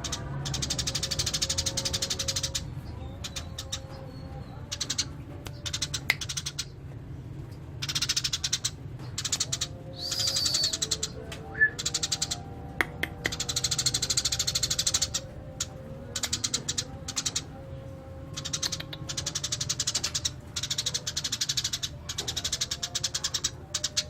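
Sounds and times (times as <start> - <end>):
sparrows chirping: 0.0 - 6.9, 7.6 - 24.0
steady low hum: 0.0 - 24.0.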